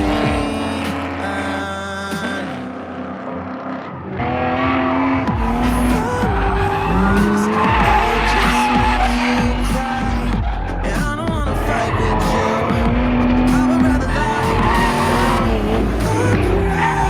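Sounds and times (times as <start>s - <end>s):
music: 0.0s - 3.0s, 5.3s - 17.0s
car engine revving: 0.0s - 17.0s
tyres squealing: 4.6s - 17.0s.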